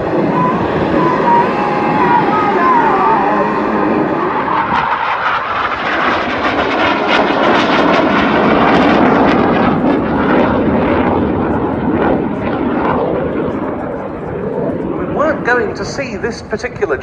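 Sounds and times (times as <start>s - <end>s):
jet aircraft roaring: 0.0s - 17.0s.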